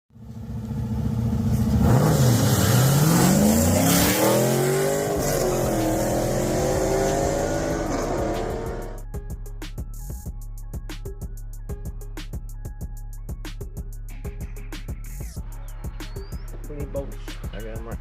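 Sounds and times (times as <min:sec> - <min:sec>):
car engine idling and revving: 0:00.1 - 0:09.0.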